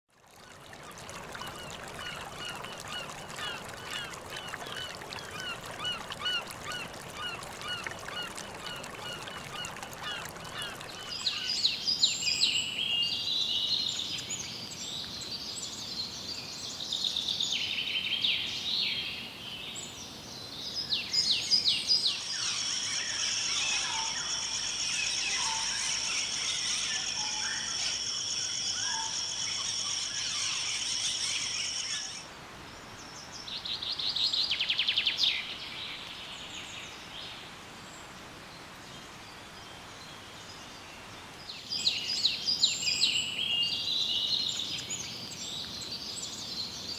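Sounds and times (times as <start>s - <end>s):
insects droning: 22.4s - 32.2s.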